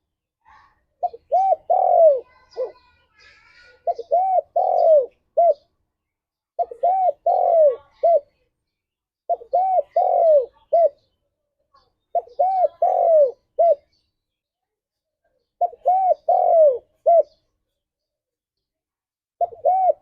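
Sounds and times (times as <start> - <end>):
dove cooing: 1.0 - 2.9, 3.8 - 5.7, 6.6 - 8.3, 9.3 - 11.1, 12.1 - 13.9, 15.6 - 17.4, 19.4 - 20.0.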